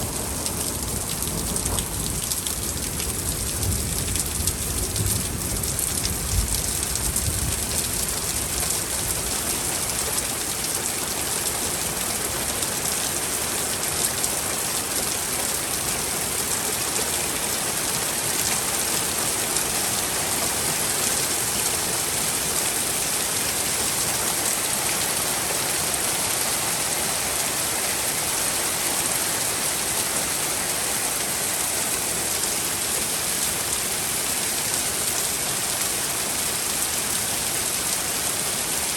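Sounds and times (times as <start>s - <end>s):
low thunder rumble: 0.0s - 7.6s
heavy rain pouring: 0.0s - 38.9s.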